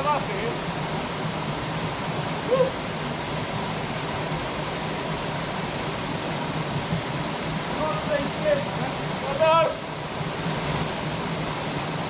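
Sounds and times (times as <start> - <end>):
waterfall rushing: 0.0 - 12.0
person shouting: 2.4 - 2.8.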